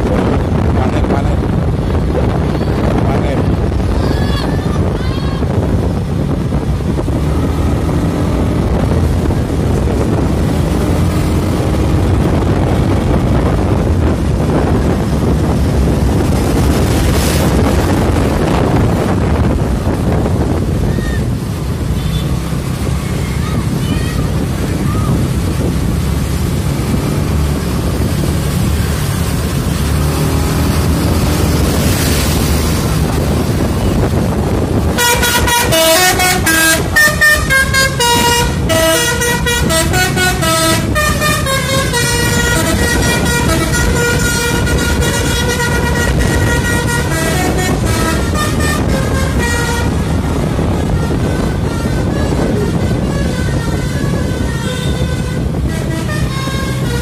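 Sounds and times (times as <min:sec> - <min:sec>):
low engine rumble: 0:00.0 - 0:57.0
horn toots: 0:21.8 - 0:23.3, 0:28.9 - 0:57.0.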